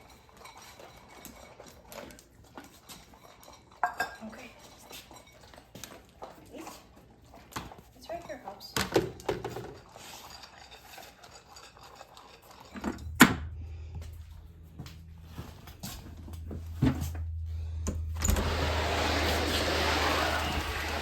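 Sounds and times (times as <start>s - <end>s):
low steady hum: 12.7s - 21.0s.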